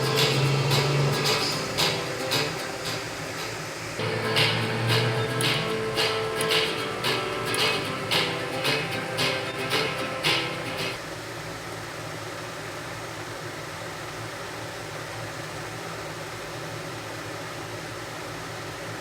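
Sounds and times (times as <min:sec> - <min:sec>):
guitar music: 0:00.0 - 0:11.0
heavy rain pouring: 0:00.0 - 0:19.0.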